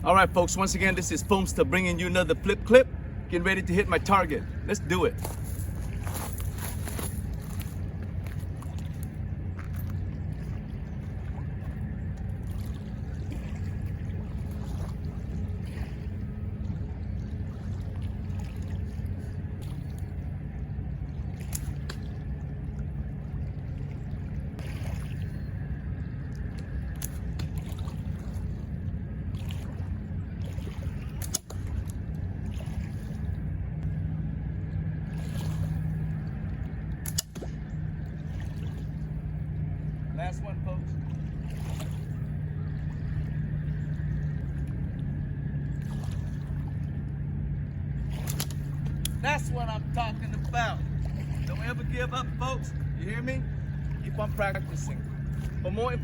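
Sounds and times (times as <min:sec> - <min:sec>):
slingshot snapping: 0:37.0 - 0:37.5.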